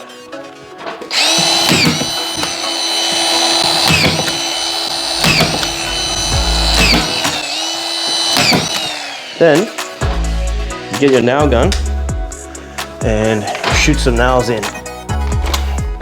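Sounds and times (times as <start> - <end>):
power drill driving screws: 1.1 - 10.1.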